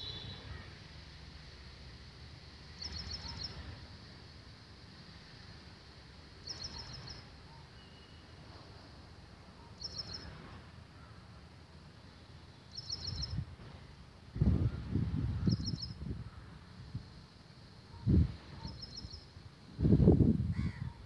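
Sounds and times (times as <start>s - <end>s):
wind rumble on microphone: 13.1s - 17.2s, 17.9s - 21.0s.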